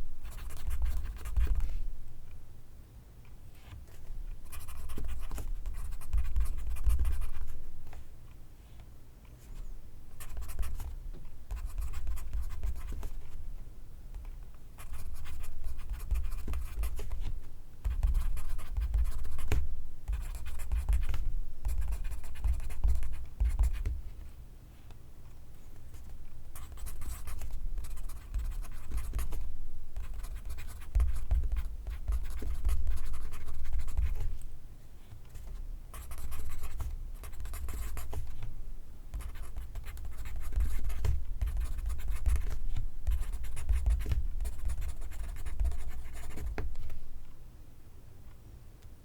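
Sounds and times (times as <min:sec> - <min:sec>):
pencil scratching on paper: 0:11.5 - 0:13.3, 0:26.0 - 0:34.3, 0:35.9 - 0:38.4, 0:39.2 - 0:46.7.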